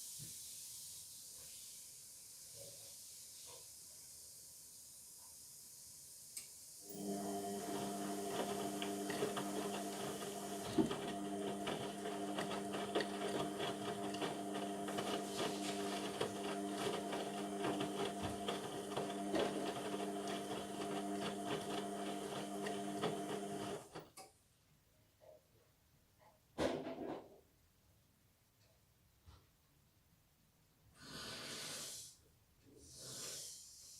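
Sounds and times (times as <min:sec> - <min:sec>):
washing machine humming and rattling: 0:06.9 - 0:24.0.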